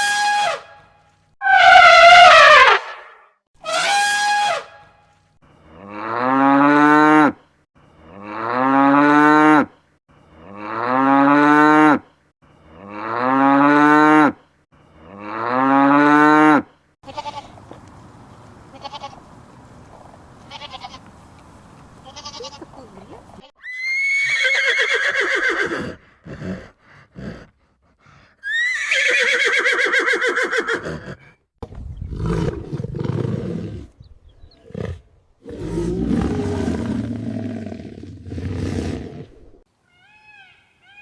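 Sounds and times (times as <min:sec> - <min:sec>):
cow mooing: 0:05.7 - 0:07.4, 0:08.0 - 0:09.7, 0:10.3 - 0:12.0, 0:12.7 - 0:14.4, 0:15.0 - 0:19.4.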